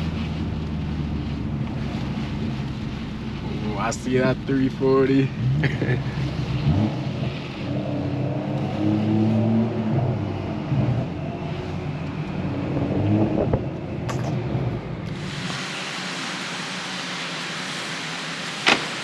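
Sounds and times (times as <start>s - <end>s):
rain hiss: 0.0s - 10.7s, 15.0s - 19.0s.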